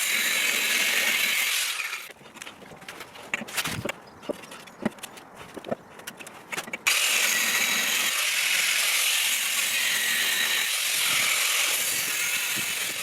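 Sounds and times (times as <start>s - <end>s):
angle grinder cutting steel: 0.0s - 2.1s, 6.9s - 13.0s.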